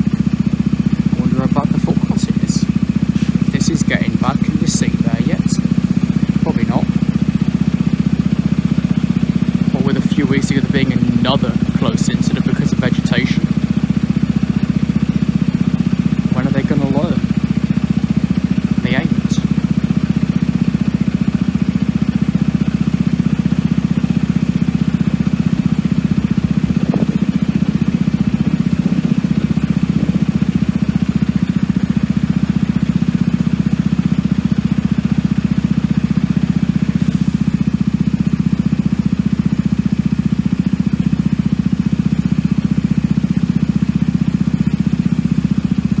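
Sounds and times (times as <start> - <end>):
low engine hum: 0.0 - 46.0.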